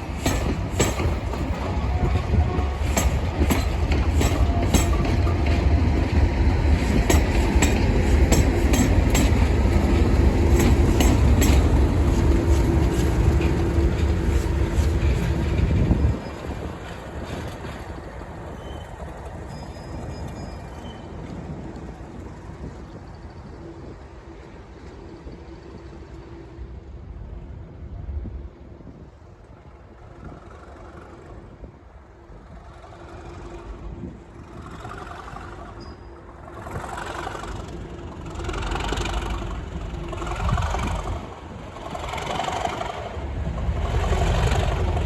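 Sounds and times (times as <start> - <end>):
wheels clicking over rail joints: 0.0 - 25.4
diesel locomotive engine rumble: 0.0 - 45.0.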